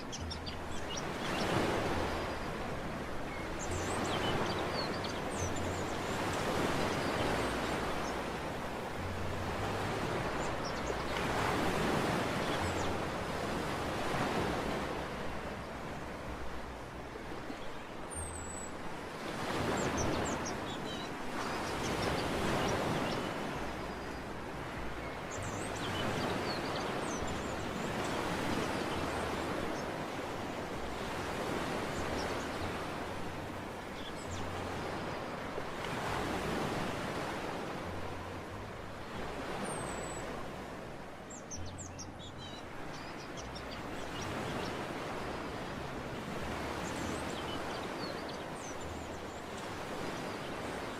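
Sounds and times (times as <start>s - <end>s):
sea waves washing onto beach: 0.0s - 50.9s.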